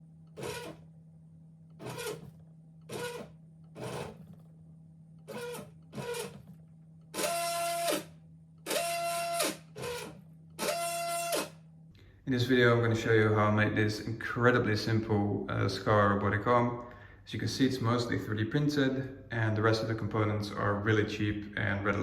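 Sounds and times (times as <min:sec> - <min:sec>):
steady low hum: 0:00.0 - 0:22.0
stepper motors buzzing and whining: 0:00.3 - 0:00.9, 0:01.8 - 0:04.5, 0:05.2 - 0:11.6.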